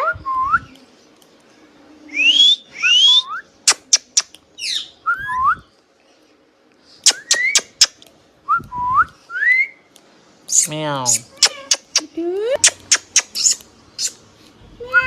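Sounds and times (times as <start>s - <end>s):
parakeet squeaking and chirping: 3.7s - 4.9s, 10.5s - 14.2s
parakeet whistling: 7.1s - 7.9s, 12.6s - 14.2s.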